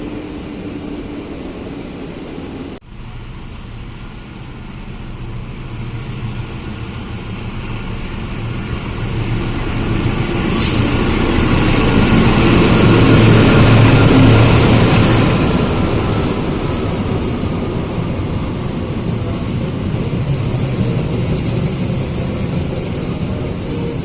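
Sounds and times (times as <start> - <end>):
train engine rumble: 0.0 - 24.0
brief hiss: 10.4 - 11.0.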